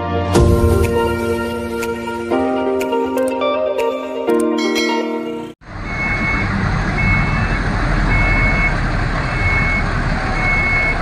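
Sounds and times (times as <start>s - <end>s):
truck engine running: 5.6s - 11.0s
truck reversing alarm beeping: 5.7s - 11.0s.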